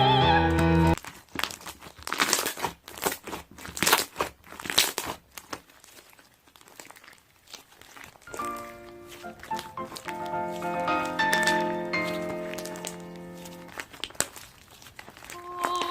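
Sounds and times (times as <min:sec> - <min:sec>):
opera singing: 0:00.0 - 0:01.0
slime squished by hand: 0:01.0 - 0:15.9.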